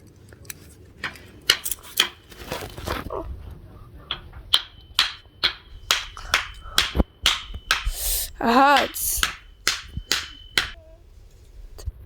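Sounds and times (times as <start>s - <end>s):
handling rustle: 0.0s - 4.8s.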